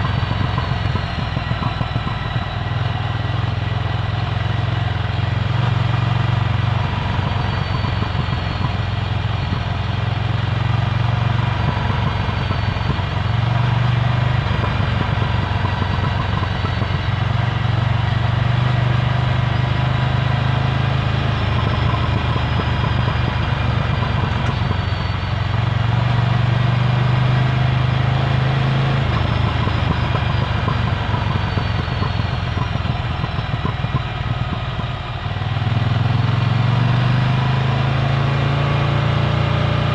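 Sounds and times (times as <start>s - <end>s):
motorcycle engine at low revs: 0.0s - 39.9s.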